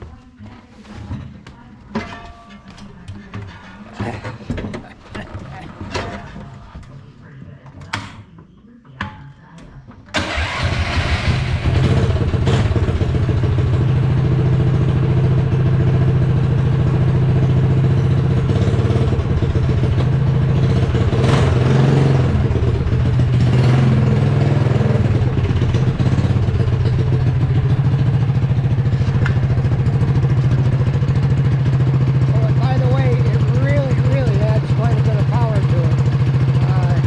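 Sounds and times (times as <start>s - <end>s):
small unmuffled engine running: 10.2s - 37.0s.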